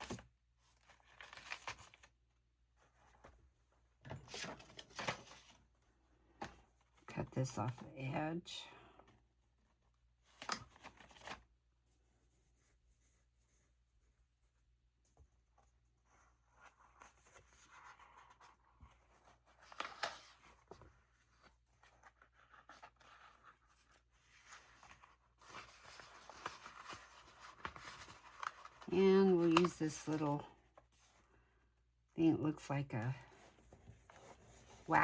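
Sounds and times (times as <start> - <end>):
paper rustling: 0.0 - 2.1, 4.1 - 5.6, 16.1 - 31.2.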